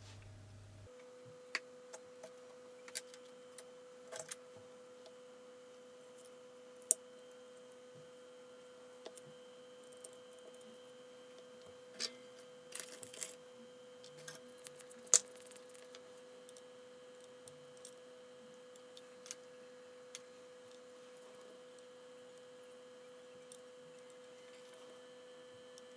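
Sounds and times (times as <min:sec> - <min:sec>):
faint hum: 0:00.0 - 0:25.9
small parts and tools clicking: 0:12.0 - 0:13.4, 0:14.0 - 0:18.0.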